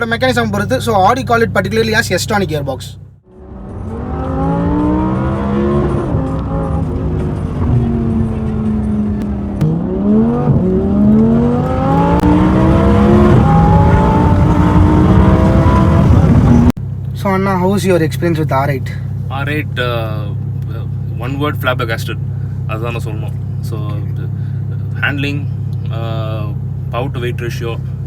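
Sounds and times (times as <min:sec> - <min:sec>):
sports car engine accelerating: 0:03.2 - 0:17.2, 0:18.4 - 0:28.0
gear upshift: 0:03.4 - 0:17.2.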